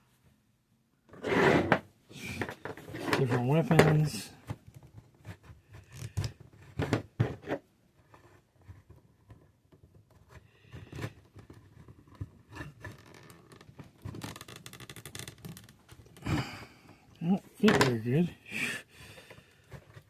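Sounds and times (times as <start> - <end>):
plastic parts clicking and knocking: 2.4 - 7.6, 17.6 - 18.0.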